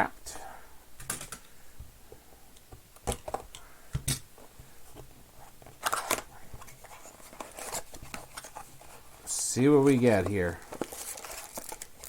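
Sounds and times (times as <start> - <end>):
packaging clicks and crinkles: 5.6 - 12.0
packaging rustling rip: 10.6 - 12.0.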